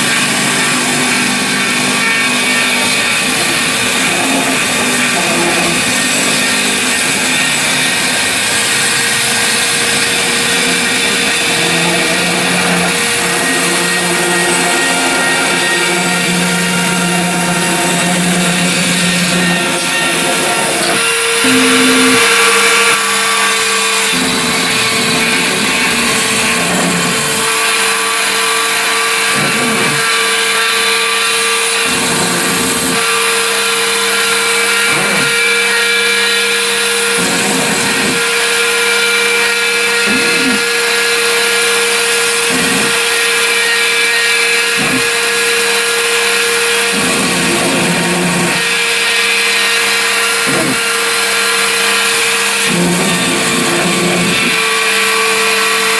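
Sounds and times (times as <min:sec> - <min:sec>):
machine motor whine: 0:00.0 - 0:55.9
rising and falling motor tone: 0:08.7 - 0:23.0.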